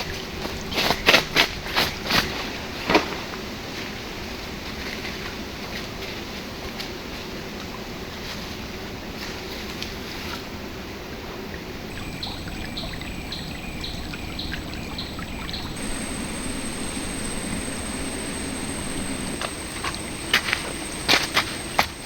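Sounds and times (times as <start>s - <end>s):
shallow river flowing: 11.9s - 22.0s.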